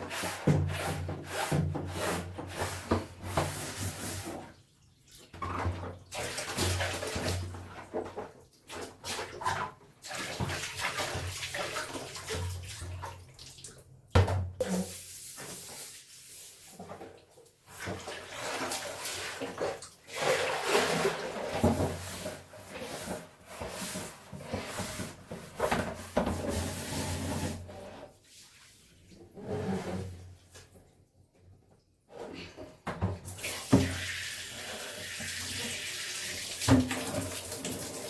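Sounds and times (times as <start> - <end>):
water splashing and sloshing: 0.2 - 31.8, 32.4 - 38.0.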